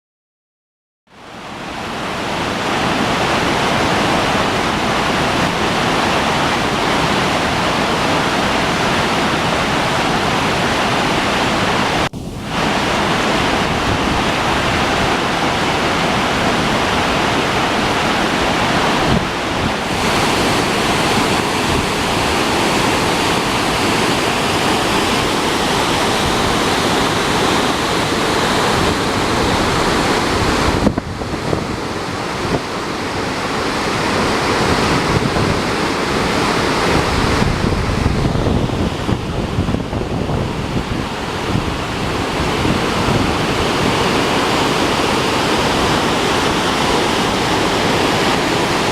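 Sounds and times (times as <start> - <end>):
rushing floodwater: 1.1 - 48.9.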